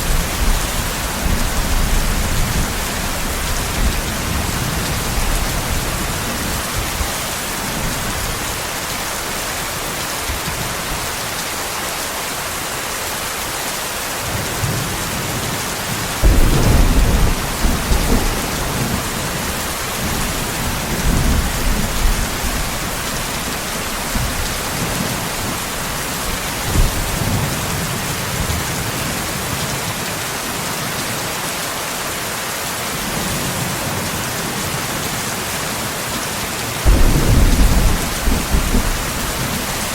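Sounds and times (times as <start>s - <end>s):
heavy rain hissing: 0.0s - 39.9s
thunder rumbling: 14.3s - 28.7s, 36.8s - 39.9s.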